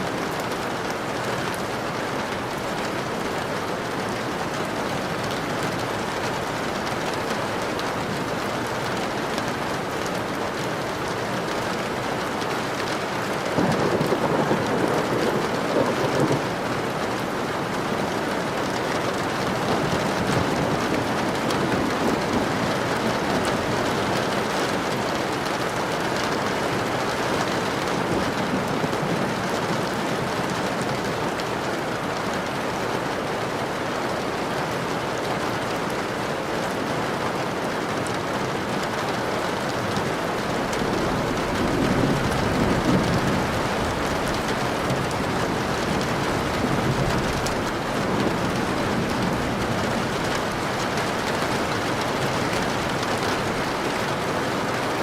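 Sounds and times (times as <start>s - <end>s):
steady rain falling: 0.0s - 55.0s
thunder rumbling: 13.4s - 31.4s, 40.0s - 54.8s.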